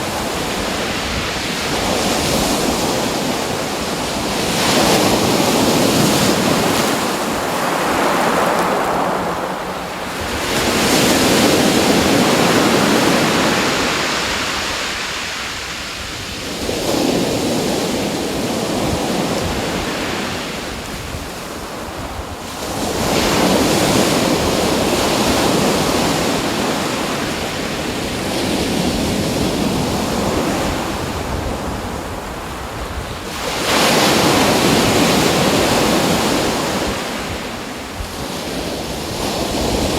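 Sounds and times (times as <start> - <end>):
ocean waves breaking: 0.0 - 20.8.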